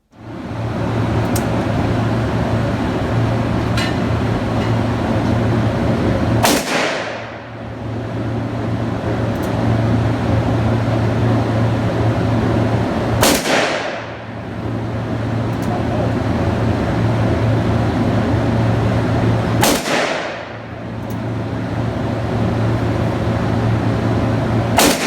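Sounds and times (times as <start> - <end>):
steady loud rumble: 0.0 - 25.0
handgun shots: 6.4 - 7.3, 13.2 - 14.1, 19.6 - 20.5, 24.8 - 25.0.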